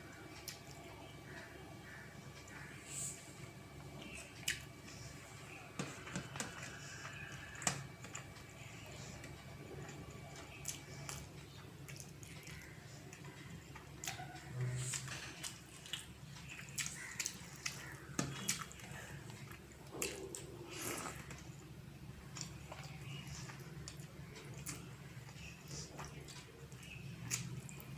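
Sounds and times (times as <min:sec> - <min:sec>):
low steady hum: 0:00.0 - 0:27.9
person eating with wet smacks: 0:09.8 - 0:21.6, 0:22.2 - 0:27.9.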